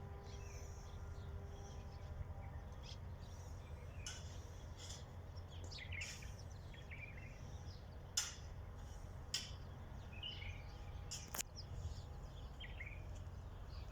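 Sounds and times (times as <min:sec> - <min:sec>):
small birds chirping: 0:00.3 - 0:13.9.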